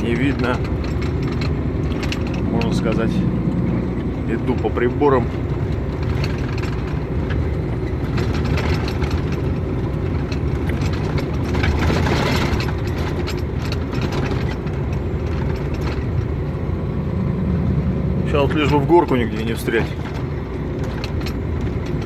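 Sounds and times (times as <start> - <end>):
vehicle engine and road rumble: 0.0 - 22.0
rushing noise: 16.6 - 19.9.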